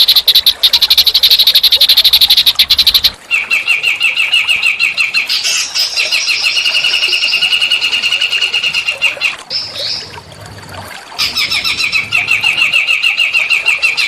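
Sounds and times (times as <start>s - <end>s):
bird rattling call: 0.0s - 3.2s
bird trilling high chirps: 0.0s - 3.2s.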